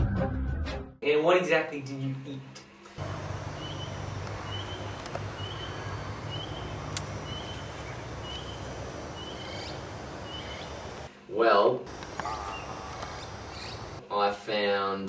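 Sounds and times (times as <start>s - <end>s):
bird chirping: 3.0s - 11.1s, 11.9s - 14.0s
low hum: 3.0s - 11.1s.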